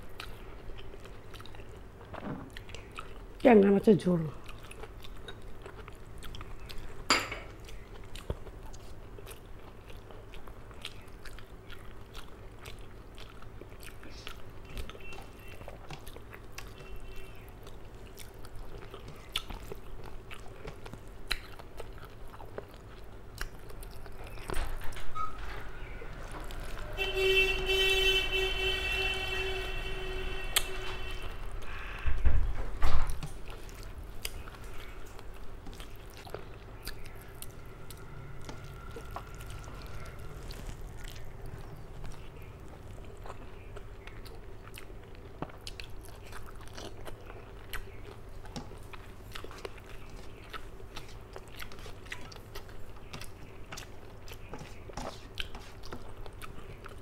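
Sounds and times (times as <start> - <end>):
person chewing and lip-smacking: 0.0 - 3.5, 4.4 - 24.6, 33.1 - 57.0
high-pitched hum: 37.2 - 42.0.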